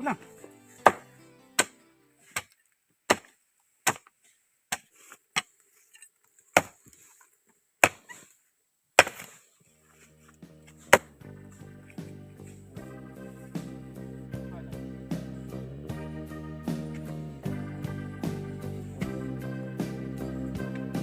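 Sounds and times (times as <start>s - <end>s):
blade chopping strikes: 0.8s - 1.8s, 3.1s - 3.3s, 7.8s - 8.1s, 9.0s - 9.4s, 10.8s - 11.2s.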